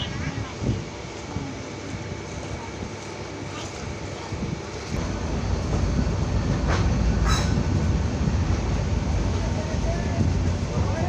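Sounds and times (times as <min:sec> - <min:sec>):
train wheels rumbling on rails: 0:04.4 - 0:11.0
sharp metallic noises: 0:06.6 - 0:07.9.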